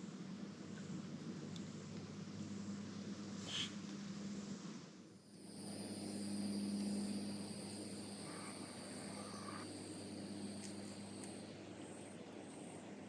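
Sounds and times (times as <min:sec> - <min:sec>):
low steady hum: 0:00.0 - 0:13.0
insects trilling: 0:05.2 - 0:13.0.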